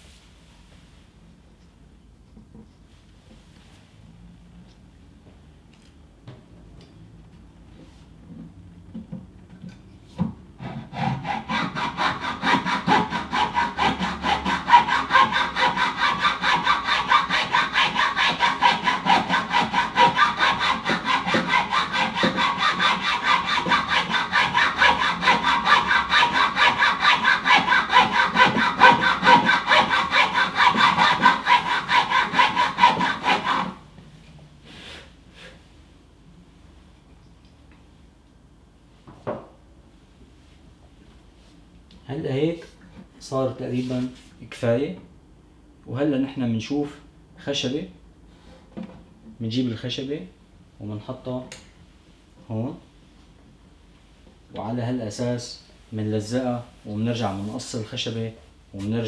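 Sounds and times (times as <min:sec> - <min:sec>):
hand saw cutting wood: 0:10.6 - 0:33.8.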